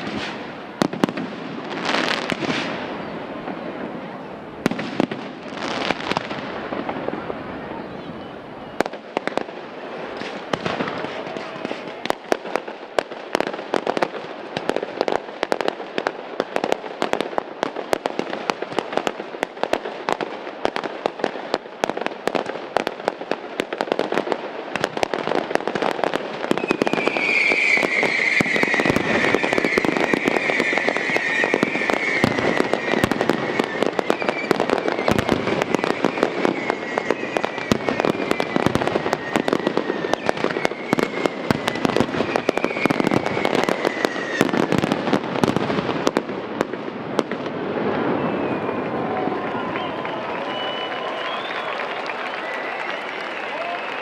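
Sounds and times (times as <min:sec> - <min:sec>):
fireworks crackling bangs: 0:00.0 - 0:54.0
high falling whistle: 0:26.6 - 0:44.4, 0:48.0 - 0:54.0.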